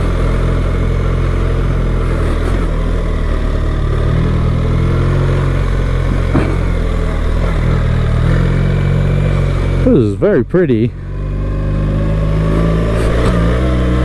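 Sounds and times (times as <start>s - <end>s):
motorcycle engine running: 0.0s - 14.0s
short knock: 6.2s - 6.9s.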